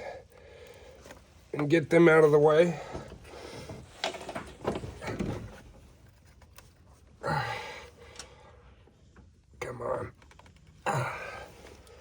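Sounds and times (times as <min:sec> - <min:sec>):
person grunting: 0:10.9 - 0:11.6.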